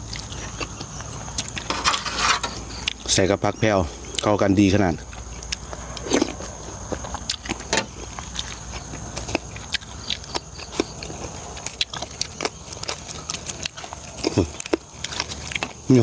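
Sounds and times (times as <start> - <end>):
steady low hum: 0.0 - 16.0
man chewing wet mouth smacks: 5.0 - 15.8.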